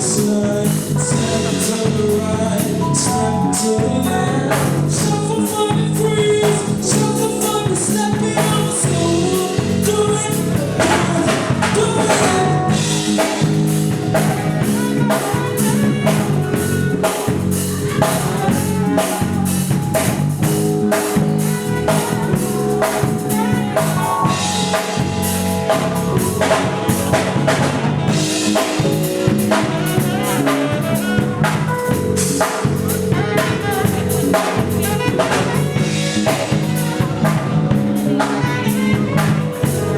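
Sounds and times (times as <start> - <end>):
drum kit beat: 0.0 - 39.9
live band playing: 0.0 - 39.9
person singing: 0.0 - 39.9.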